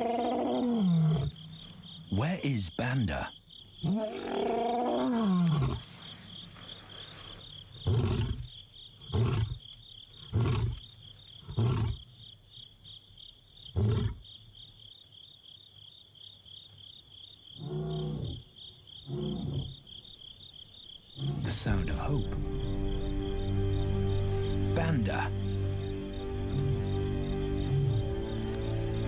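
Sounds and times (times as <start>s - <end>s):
lion roaring: 0.0s - 1.4s, 3.8s - 5.9s, 19.1s - 19.8s, 21.2s - 21.6s.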